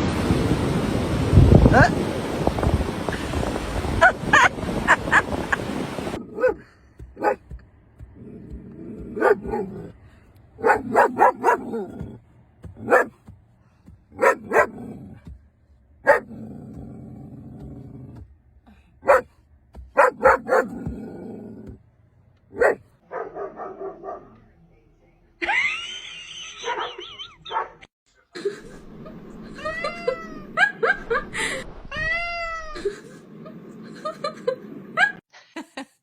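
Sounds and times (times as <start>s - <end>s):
dog barking: 6.2s - 6.6s, 7.2s - 7.5s, 9.0s - 10.0s, 10.6s - 12.1s, 12.8s - 13.2s, 14.1s - 15.0s, 16.0s - 16.4s, 19.0s - 19.3s, 19.9s - 20.9s, 22.5s - 24.4s, 26.6s - 27.9s
dog growling: 6.2s - 7.4s, 8.2s - 10.0s, 10.6s - 12.2s, 14.2s - 15.2s, 16.1s - 18.2s.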